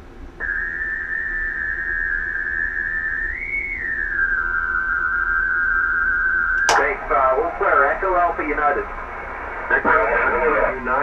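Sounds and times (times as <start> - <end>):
radio heterodyne whistle: 0.4 - 10.6.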